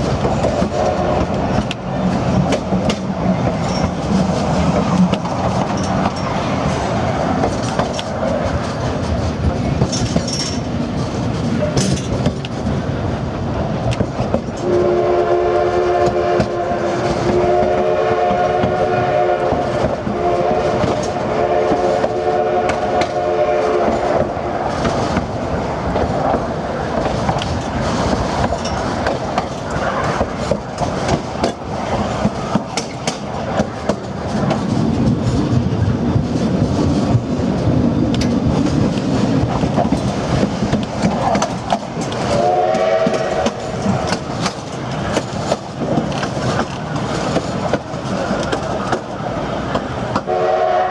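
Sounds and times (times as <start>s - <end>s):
clicking over rail joints: 0.0s - 50.4s
train cars rolling on rails: 0.0s - 50.9s
steam locomotive whistle: 0.6s - 1.4s, 14.6s - 24.6s, 42.2s - 43.8s, 50.2s - 50.9s.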